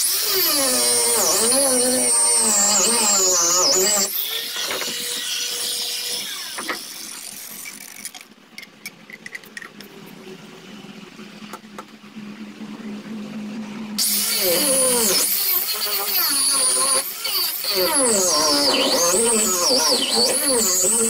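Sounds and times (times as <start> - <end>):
power grinder: 0.0 - 8.0, 14.0 - 21.0.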